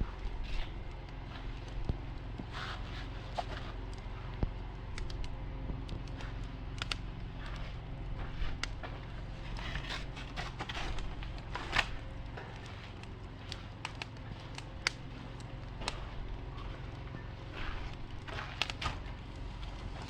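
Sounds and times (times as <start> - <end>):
campfire crackling and popping: 0.0 - 20.0
low background rumble: 0.0 - 20.0.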